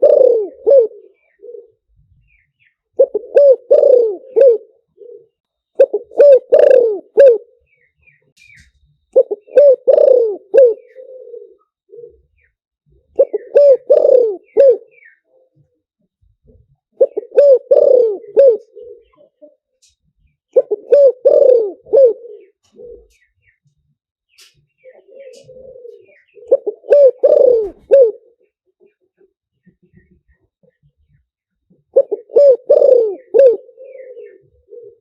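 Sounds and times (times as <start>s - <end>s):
dove cooing: 0.0s - 2.4s, 3.0s - 7.6s, 9.2s - 15.8s, 16.5s - 19.6s, 20.5s - 23.3s, 24.8s - 29.3s, 31.7s - 35.0s.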